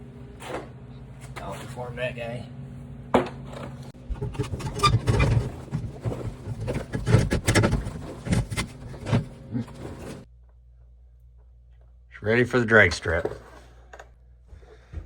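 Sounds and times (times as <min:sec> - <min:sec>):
handling knocks and rattles: 0:03.3 - 0:10.3.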